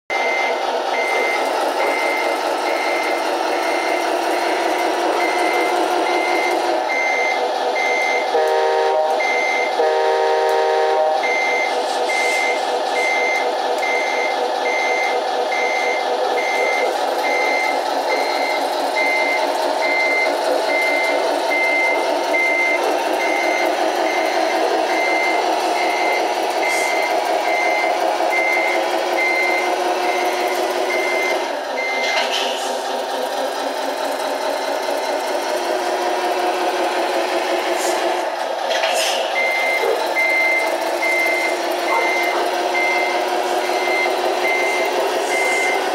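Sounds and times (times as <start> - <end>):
reversing beeper: 0.1 - 32.2, 39.3 - 45.9
diesel engine running: 0.1 - 45.9
horn blasts: 8.2 - 12.5.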